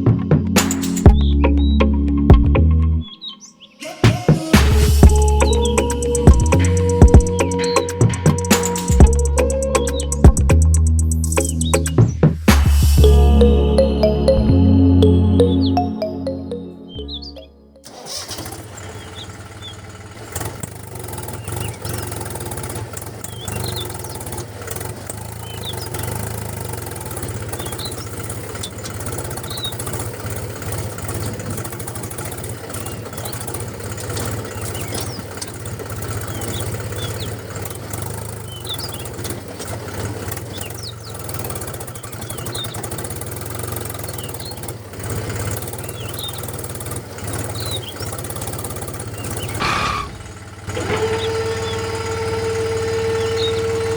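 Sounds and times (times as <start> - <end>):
small engine running: 4.6 - 15.0, 17.8 - 53.9
short high chirps: 12.5 - 17.9.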